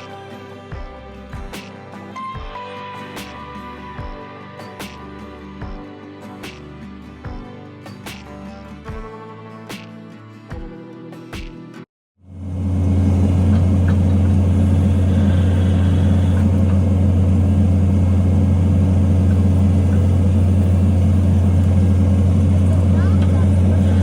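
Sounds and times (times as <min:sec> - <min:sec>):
post-hole auger engine running: 0:12.3 - 0:24.0.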